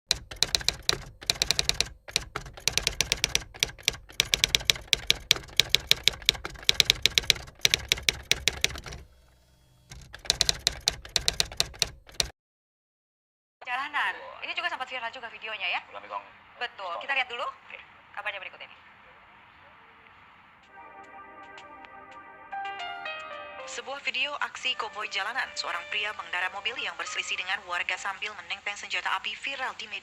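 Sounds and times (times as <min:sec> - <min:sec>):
typewriter keystrokes clacking: 0:00.0 - 0:09.1, 0:09.9 - 0:12.3.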